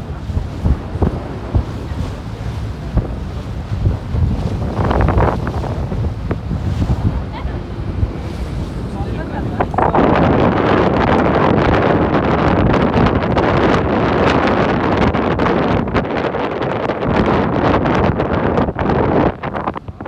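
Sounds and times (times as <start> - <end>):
water rushing past hull: 0.0 - 20.0
wind buffeting microphone: 0.0 - 20.0.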